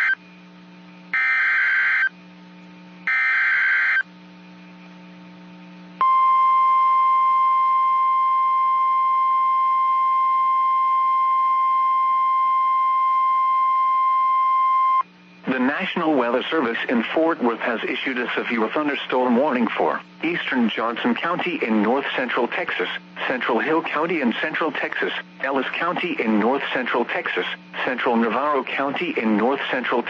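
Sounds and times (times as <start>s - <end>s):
steady alarm tone: 1.1s - 2.2s, 3.0s - 4.1s.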